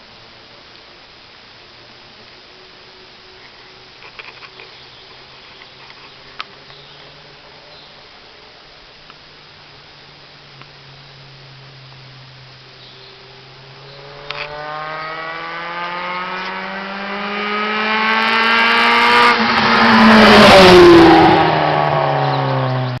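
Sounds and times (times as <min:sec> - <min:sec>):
car engine accelerating past: 0:13.2 - 0:23.0.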